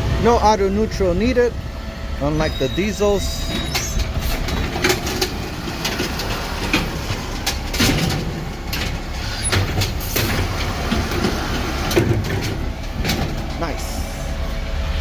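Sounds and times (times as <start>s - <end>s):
garbage truck packer drone: 0.0s - 15.0s
knocks and clatter of compacting: 3.0s - 14.4s.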